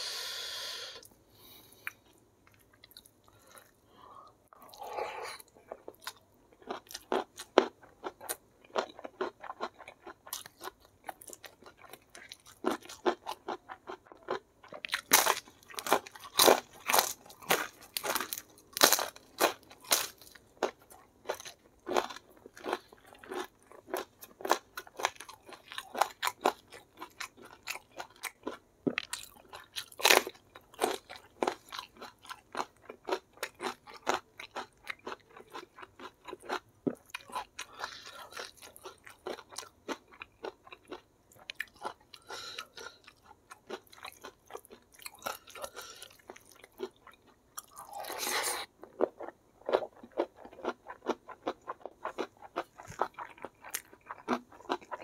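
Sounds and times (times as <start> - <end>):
person chewing crunchy food: 1.0 - 55.0.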